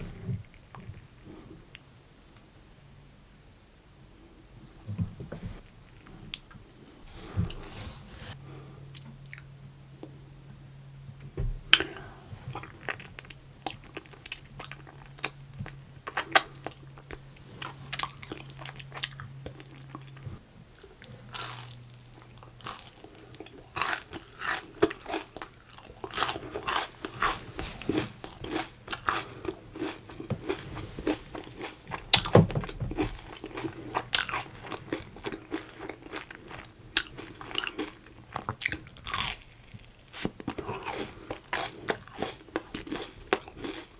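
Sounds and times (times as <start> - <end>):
person crunching and chewing food: 11.8 - 43.9.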